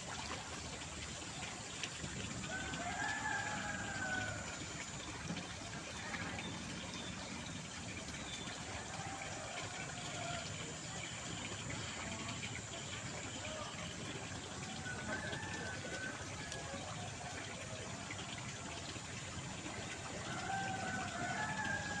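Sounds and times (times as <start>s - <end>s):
flowing water: 0.0s - 22.0s
distant rooster crowing: 2.5s - 4.6s, 20.3s - 22.0s.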